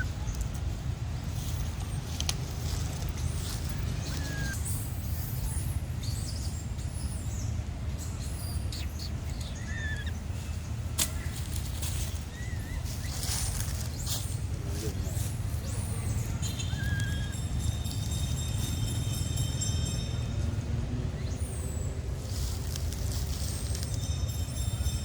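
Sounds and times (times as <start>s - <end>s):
high animal chirps and squeaks: 1.4s - 5.7s, 8.4s - 10.2s, 11.1s - 20.0s.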